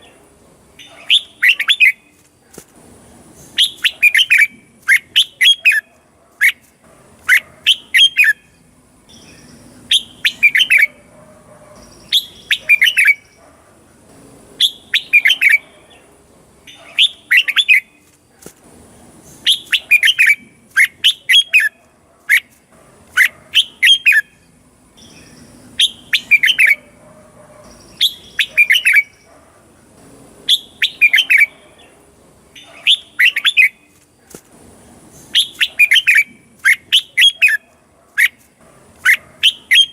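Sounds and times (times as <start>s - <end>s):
bird singing: 0.8s - 2.2s, 3.3s - 13.6s, 14.6s - 18.1s, 19.2s - 22.5s, 23.1s - 34.0s, 35.1s - 38.4s, 39.0s - 39.9s.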